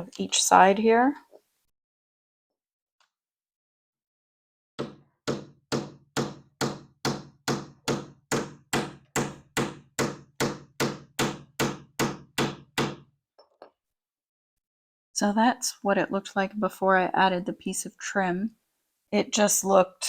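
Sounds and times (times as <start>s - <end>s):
hammer knocking on wood: 4.8s - 13.0s.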